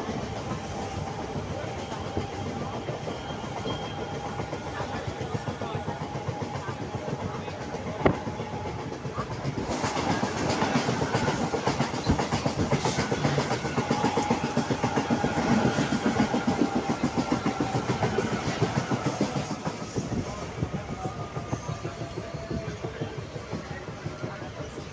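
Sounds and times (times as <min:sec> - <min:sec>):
second train passing: 0:00.0 - 0:24.9
train wheels clattering over joints: 0:00.0 - 0:24.9.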